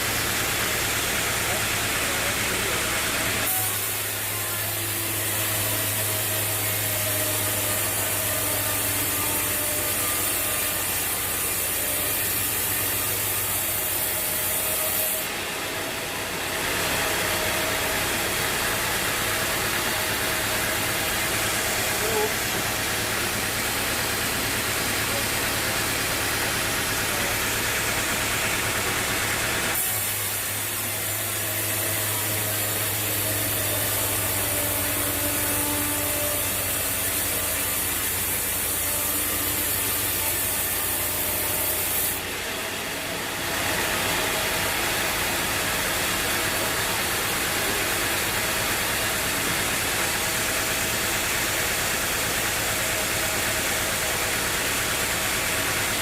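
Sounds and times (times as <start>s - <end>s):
bandsaw cutting log: 0.0s - 56.0s.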